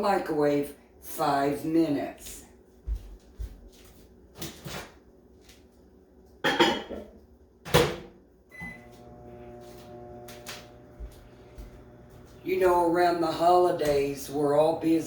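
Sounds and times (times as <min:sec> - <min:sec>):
microwave oven humming: 0:08.5 - 0:15.0.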